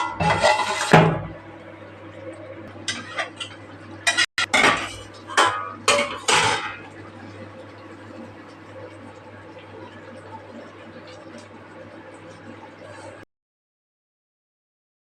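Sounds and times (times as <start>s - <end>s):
metal utensil scraping a pot: 0.0s - 1.2s, 2.9s - 6.8s.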